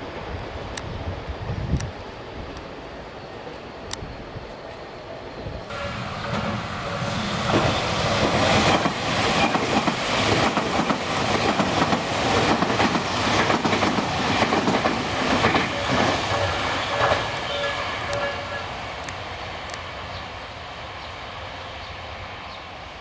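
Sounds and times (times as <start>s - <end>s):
train rushing past: 0.0s - 23.0s
wheels clacking over rail joints: 5.7s - 19.9s.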